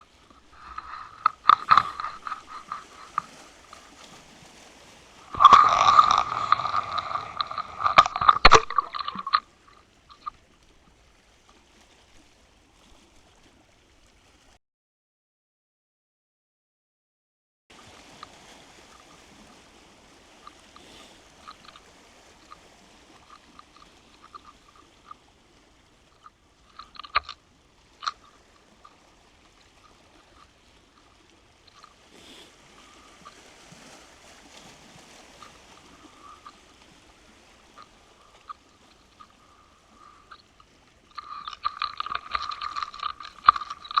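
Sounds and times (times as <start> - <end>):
muffled underwater hiss: 0.0 - 10.3, 20.4 - 22.5, 30.3 - 33.4, 34.0 - 40.4
light clicks underwater: 0.0 - 11.6, 20.2 - 44.0
rattle of rapid clicks: 41.2 - 44.0.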